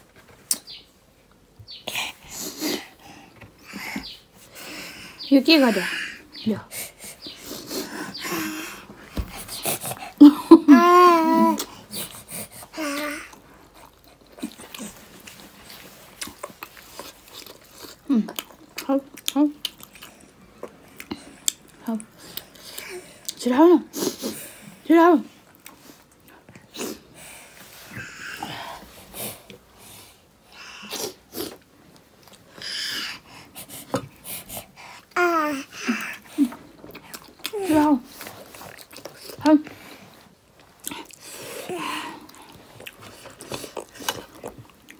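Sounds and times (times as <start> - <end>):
young child whining cry: 10.7 - 11.7
breathy sniffs and snorts: 32.6 - 35.2.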